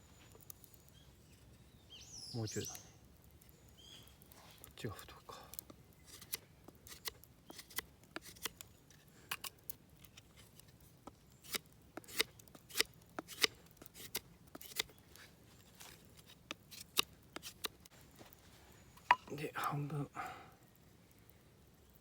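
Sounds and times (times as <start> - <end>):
knife whittling wood: 6.1 - 8.6, 11.4 - 15.0, 16.2 - 17.7.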